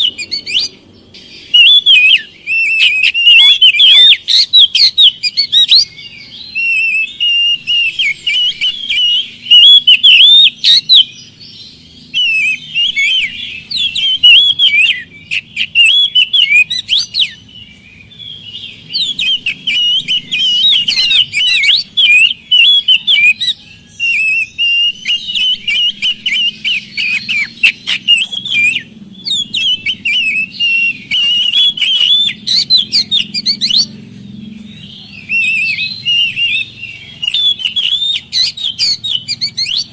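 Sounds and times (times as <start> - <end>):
bird whistling and chattering: 0.0 - 39.9.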